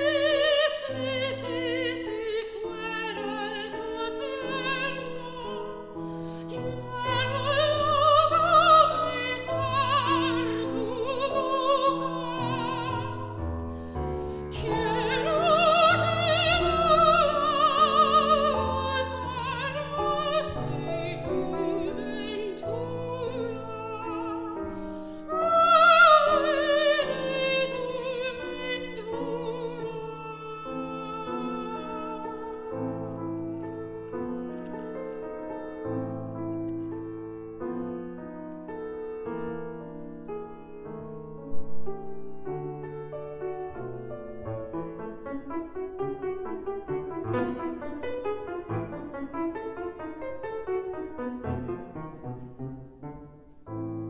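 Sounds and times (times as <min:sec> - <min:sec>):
soprano singing with vibrato: 0:00.0 - 0:32.9
piano accompaniment: 0:00.0 - 0:54.0.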